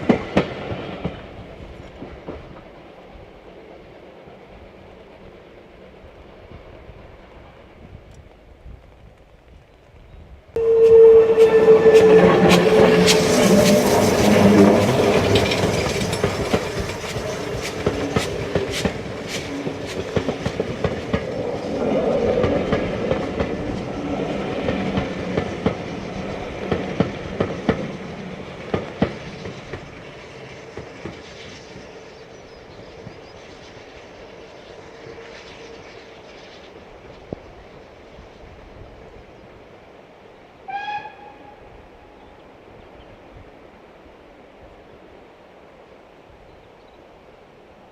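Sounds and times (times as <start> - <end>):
train wheels clicking over rail joints: 11.3 - 32.0.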